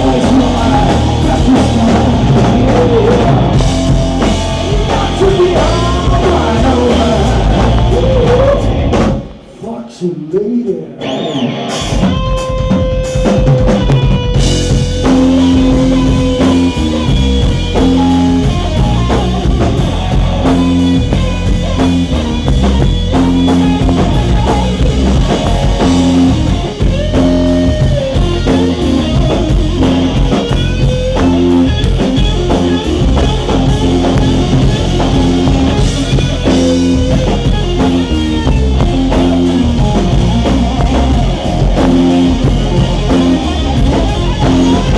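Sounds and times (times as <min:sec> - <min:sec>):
electric guitar lead: 0:00.0 - 0:09.6, 0:10.7 - 0:44.9
drum kit beat: 0:00.0 - 0:09.8, 0:11.6 - 0:44.9.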